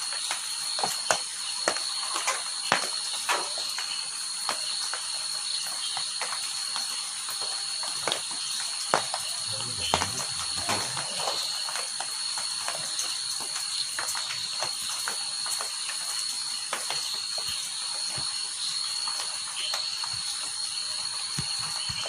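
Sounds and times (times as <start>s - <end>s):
insects chirring: 0.0s - 22.0s
rain drops dripping: 0.0s - 22.0s.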